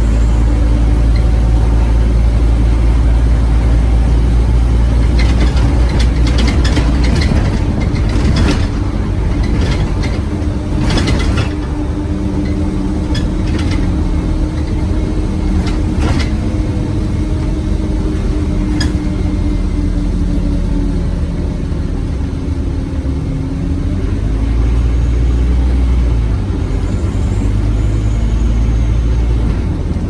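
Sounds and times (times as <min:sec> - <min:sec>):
interior panels rattling: 0:00.0 - 0:19.8
bus diesel engine rumbling: 0:00.0 - 0:30.0.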